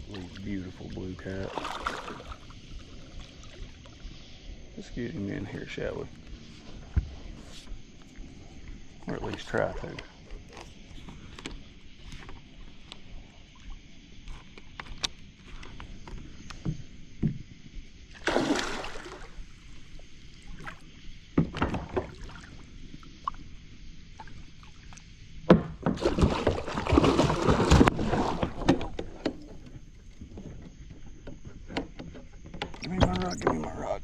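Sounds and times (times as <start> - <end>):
fish thrashing and splashing: 1.4 - 2.5, 18.2 - 19.3, 26.0 - 28.8
knocks against kayak hull: 25.5 - 26.5.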